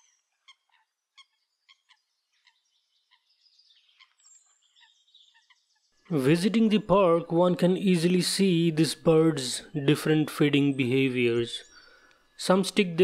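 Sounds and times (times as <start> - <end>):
sharp downslurred bird chirps: 0.0 - 7.2, 8.7 - 13.0.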